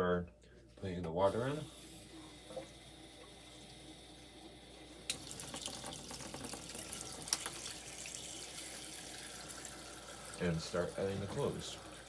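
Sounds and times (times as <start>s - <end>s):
water filling washing machine tub: 1.3s - 12.0s
clicks and splashes: 5.1s - 7.8s.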